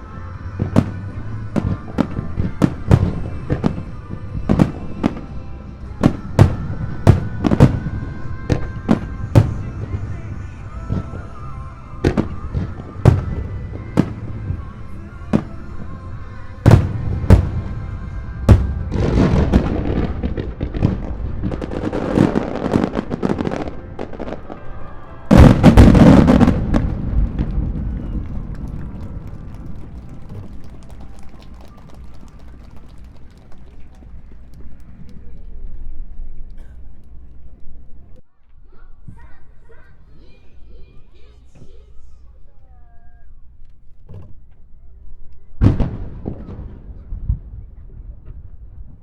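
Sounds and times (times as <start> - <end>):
fireworks bursting: 0.0 - 35.7, 45.6 - 49.0
fireworks crackling: 0.0 - 36.4.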